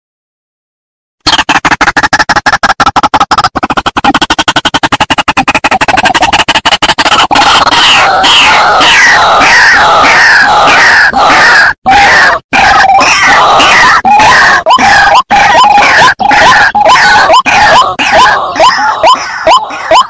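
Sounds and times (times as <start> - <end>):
waterhen calls from recording: 7.4 - 20.0.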